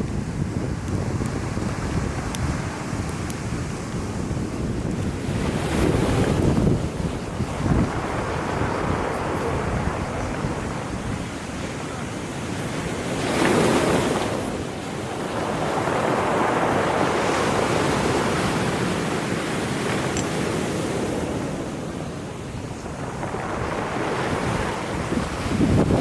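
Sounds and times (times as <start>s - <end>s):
surf breaking on shore: 0.0s - 26.0s
wind buffeting microphone: 0.0s - 26.0s.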